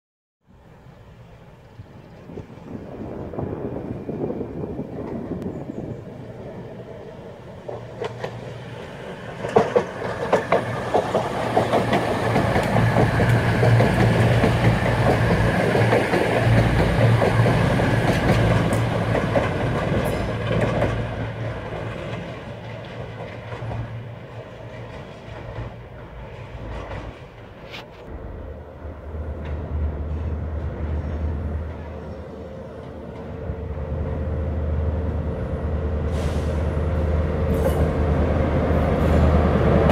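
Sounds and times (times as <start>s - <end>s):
diesel train passing: 0.5s - 39.9s
wheels clicking over rail joints: 9.2s - 27.9s.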